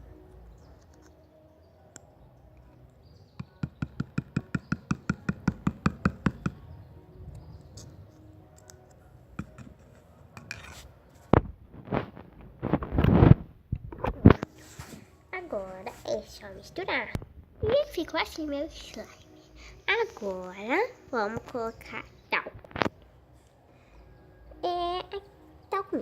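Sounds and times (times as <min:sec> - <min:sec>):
irregular knocks: 0:03.4 - 0:06.6
scraping: 0:09.4 - 0:15.1.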